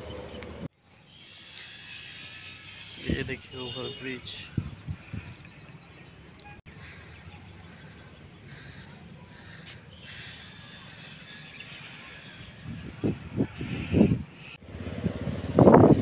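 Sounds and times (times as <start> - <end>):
low steady outdoor rumble: 0.0 - 0.7
birds chirping and calling: 0.0 - 16.0.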